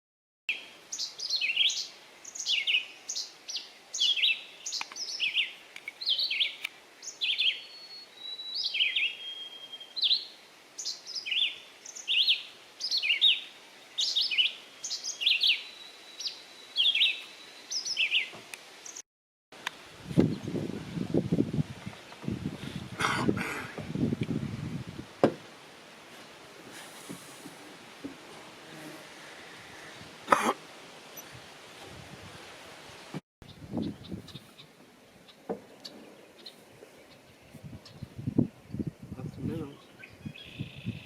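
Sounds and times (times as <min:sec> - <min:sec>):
small birds chirping: 0:00.5 - 0:19.0, 0:33.4 - 0:41.0
whistled bird tones: 0:07.4 - 0:10.2.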